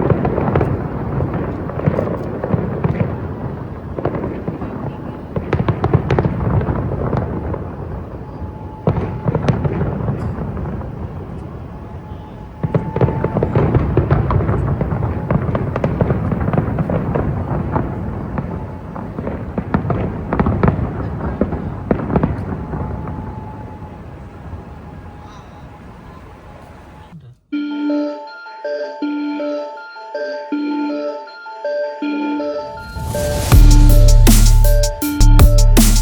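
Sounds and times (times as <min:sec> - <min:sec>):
fireworks crackling and popping: 0:00.0 - 0:26.8, 0:32.7 - 0:36.0.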